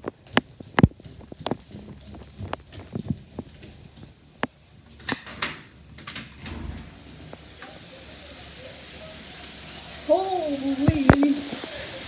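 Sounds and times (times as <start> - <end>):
steady hiss of rain: 0.0 - 12.0
door being unlatched and opened: 5.0 - 7.3.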